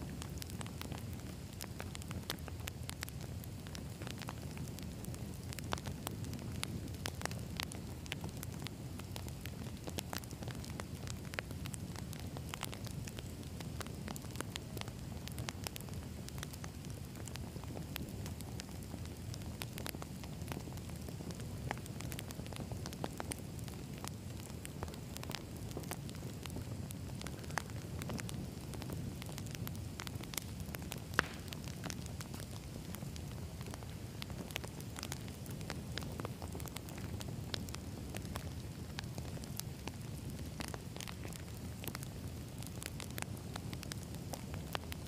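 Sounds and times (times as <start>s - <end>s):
campfire flames rumbling: 0.0s - 45.0s
fire crackling and popping: 0.0s - 45.0s.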